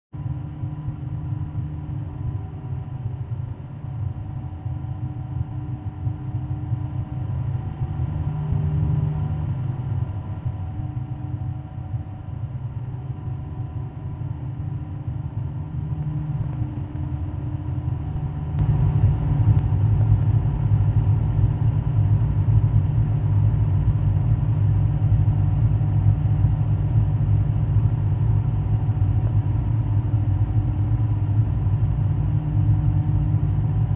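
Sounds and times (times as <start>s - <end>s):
race car engines idling: 13.8s - 33.9s.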